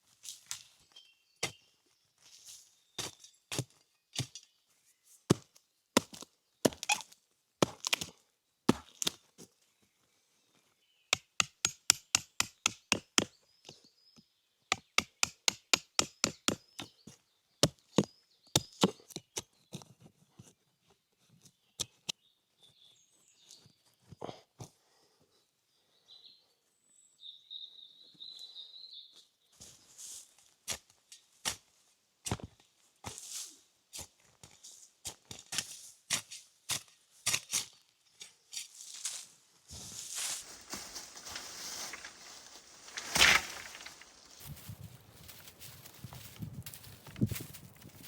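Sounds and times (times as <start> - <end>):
wood being chopped: 11.2 - 13.3, 42.9 - 44.1.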